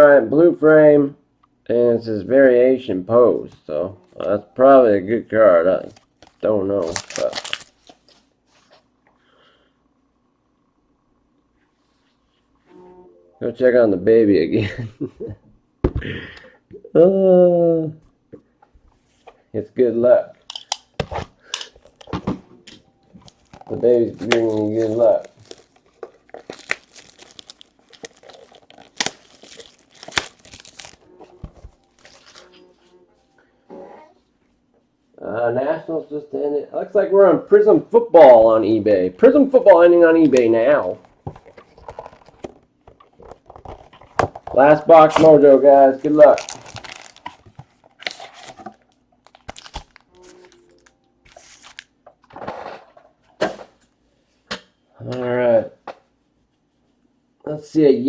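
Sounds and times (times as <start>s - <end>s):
foil wrappers crinkling: 5.8s - 8.3s, 23.1s - 32.6s, 40.2s - 52.0s
foil wrapper ripping: 6.1s - 8.1s, 23.2s - 31.1s, 31.9s - 32.6s, 46.0s - 51.9s.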